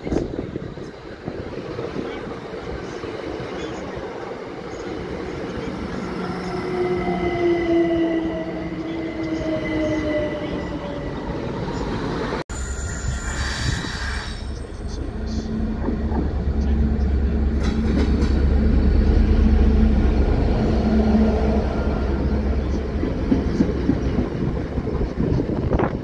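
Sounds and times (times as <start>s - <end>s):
diesel locomotive engine drone: 0.0s - 26.0s
electric train whine: 0.3s - 25.9s
wheel squeal: 12.5s - 14.9s.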